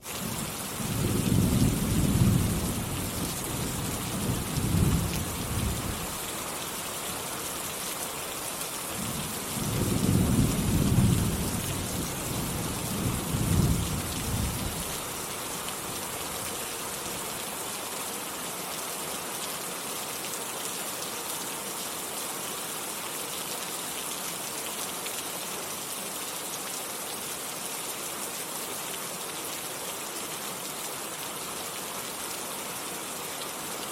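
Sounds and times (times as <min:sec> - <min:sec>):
heavy rain: 0:00.0 - 0:33.9
low rolls of thunder: 0:09.0 - 0:14.8.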